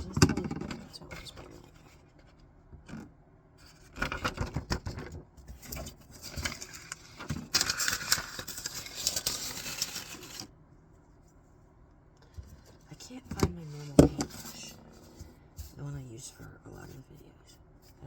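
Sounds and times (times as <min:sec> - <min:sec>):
rustling: 0:05.5 - 0:11.5.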